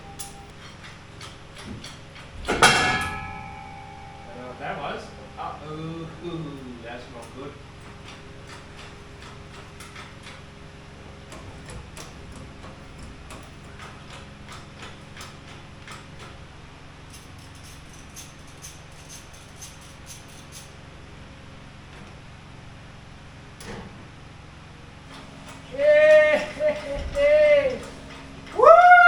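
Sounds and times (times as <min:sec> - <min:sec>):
metal clicks and knocks: 0:00.0 - 0:04.5, 0:06.6 - 0:20.7
steady low hum: 0:00.0 - 0:29.0.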